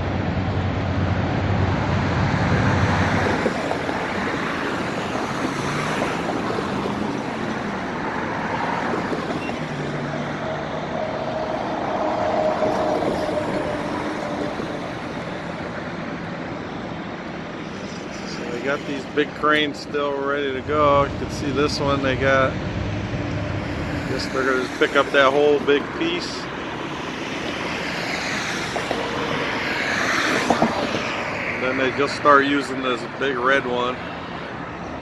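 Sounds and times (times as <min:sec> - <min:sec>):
low engine hum: 0:00.0 - 0:05.5, 0:19.4 - 0:24.6
road traffic passing: 0:00.0 - 0:35.0.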